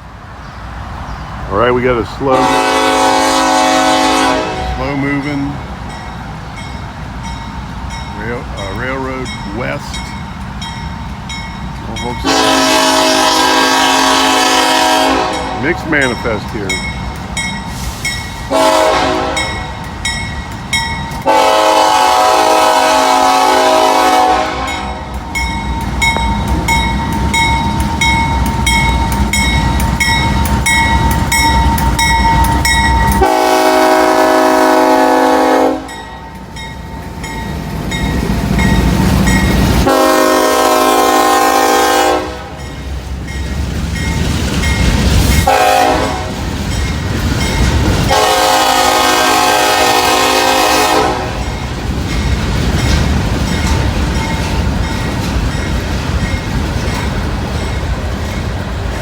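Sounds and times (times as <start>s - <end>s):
train rumbling: 0.0s - 59.0s
locomotive air horn blasts: 2.3s - 5.0s, 12.2s - 15.8s, 17.8s - 19.6s, 21.2s - 25.1s, 33.2s - 36.0s, 39.8s - 42.6s, 45.4s - 46.4s, 48.1s - 51.4s
crossing bell ringing: 2.4s - 59.0s.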